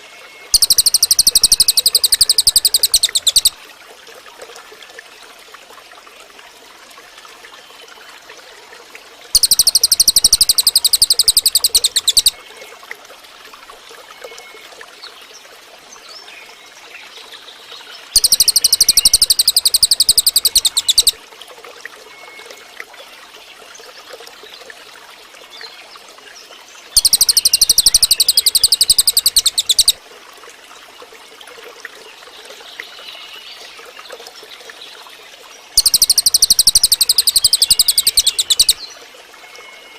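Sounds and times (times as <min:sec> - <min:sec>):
faint bird chirps: 0:00.5 - 0:03.6, 0:09.4 - 0:12.4, 0:18.2 - 0:21.2, 0:27.0 - 0:30.0, 0:35.8 - 0:39.9
bird rapid high trill: 0:00.6 - 0:03.6, 0:09.4 - 0:12.4, 0:18.2 - 0:21.2, 0:27.0 - 0:30.0, 0:35.8 - 0:38.8.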